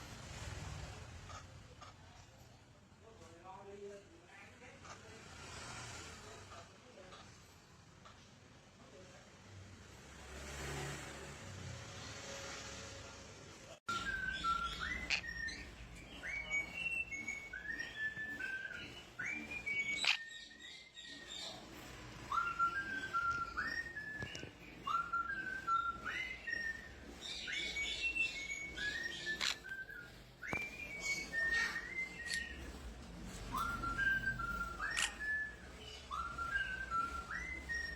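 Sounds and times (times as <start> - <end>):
parrot whistling a tune: 13.9 - 37.9
sharp clicks: 34.3 - 35.4.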